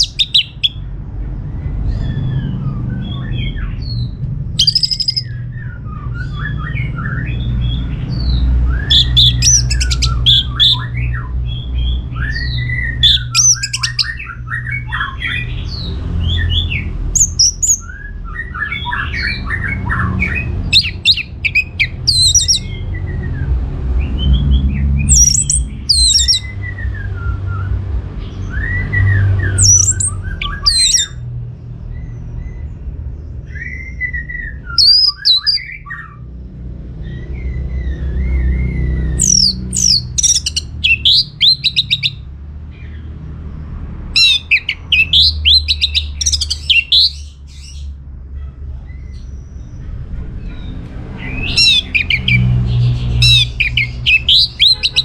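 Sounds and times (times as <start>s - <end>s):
thrush singing: 0.0s - 0.8s, 4.6s - 5.5s, 6.2s - 11.3s, 12.0s - 23.0s, 24.2s - 27.0s, 28.6s - 31.2s, 38.8s - 42.3s, 44.2s - 47.3s, 50.0s - 55.0s
low background rumble: 0.0s - 55.0s.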